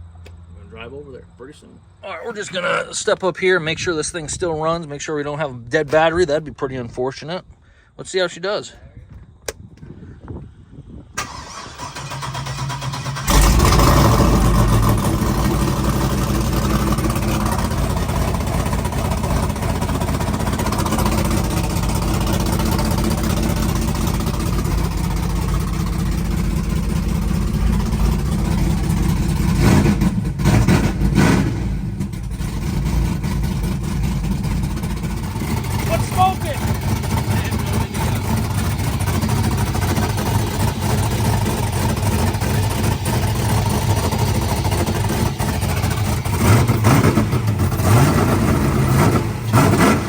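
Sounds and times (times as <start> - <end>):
car engine cranking and running: 11.2 - 50.0
engine throttle blips: 11.2 - 50.0.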